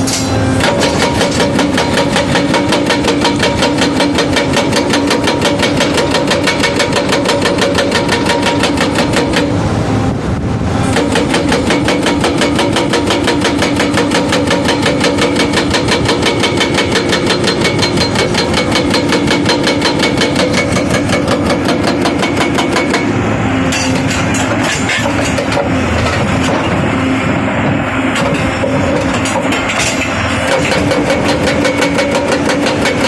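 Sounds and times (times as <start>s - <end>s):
hydraulic breaker hammering: 0.0s - 9.6s, 10.9s - 27.0s, 28.1s - 33.0s
diesel engine running: 0.0s - 33.0s
scattered knocks: 0.1s - 9.5s, 11.0s - 23.1s, 28.2s - 33.0s.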